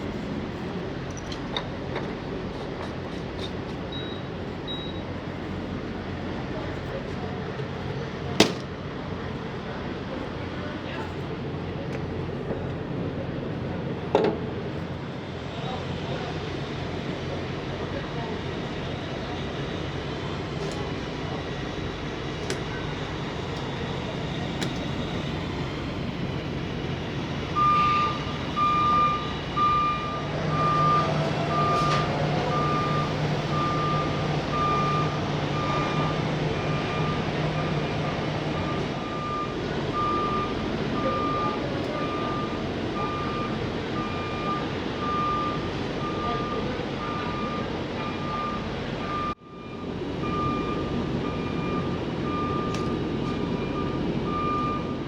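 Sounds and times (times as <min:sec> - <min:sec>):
trucks idling: 0:00.0 - 0:55.0
reversing alarm beeping: 0:03.9 - 0:05.2, 0:27.5 - 0:55.0.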